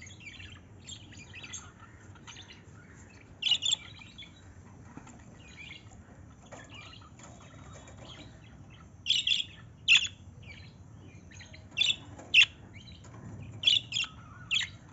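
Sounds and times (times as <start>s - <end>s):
loud sharp bird calls: 0.0s - 4.4s, 7.7s - 14.9s
soft bird twittering: 0.0s - 4.6s, 5.3s - 14.9s.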